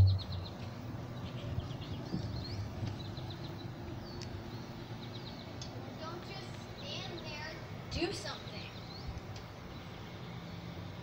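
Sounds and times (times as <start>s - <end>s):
low steady outdoor hum: 0.0s - 11.0s
songbirds chirping: 0.0s - 11.0s.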